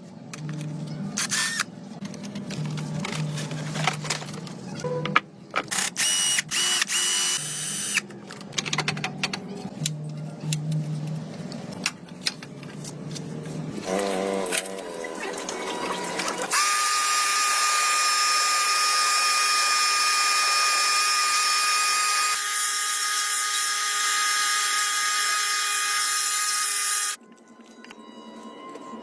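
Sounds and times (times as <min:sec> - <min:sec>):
electric power tool whining: 0:16.4 - 0:27.2.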